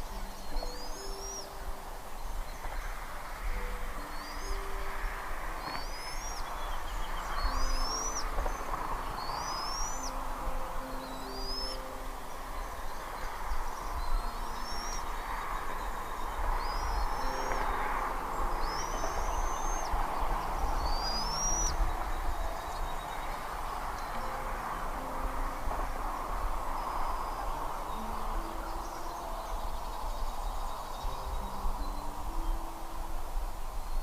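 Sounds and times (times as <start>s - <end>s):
high whistled bird calls: 0.0s - 1.6s, 5.6s - 18.0s, 18.6s - 23.4s
outdoor background: 0.0s - 34.0s.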